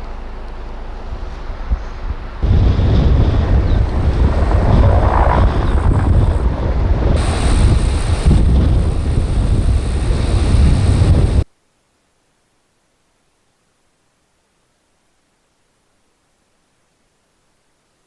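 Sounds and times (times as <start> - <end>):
wind buffeting microphone: 1.0 - 11.5.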